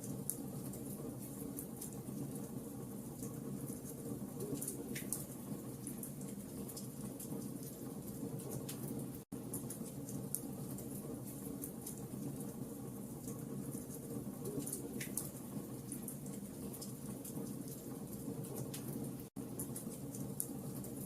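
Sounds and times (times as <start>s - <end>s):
fire pops and snaps: 3.9s - 8.9s, 13.2s - 17.9s.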